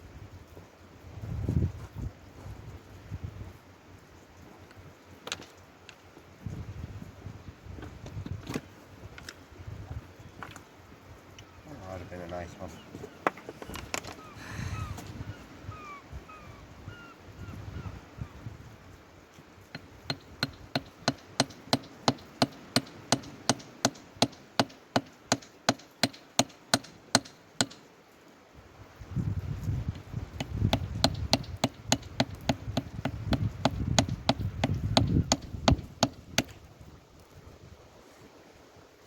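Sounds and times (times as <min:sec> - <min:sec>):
hammer striking rock: 0:19.7 - 0:27.8, 0:30.4 - 0:36.6.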